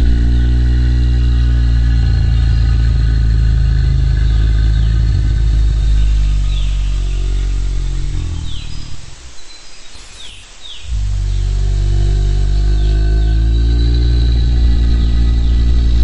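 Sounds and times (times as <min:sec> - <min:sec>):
deep dinosaur growl: 0:00.0 - 0:09.1, 0:10.9 - 0:16.0
faint bird chirp: 0:00.0 - 0:16.0.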